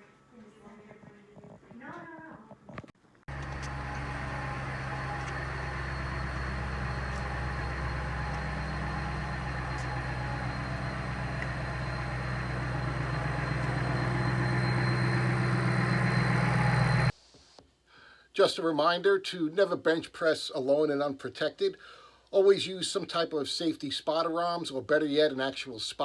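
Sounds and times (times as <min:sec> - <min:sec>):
low steady motor hum: 0:03.3 - 0:17.1.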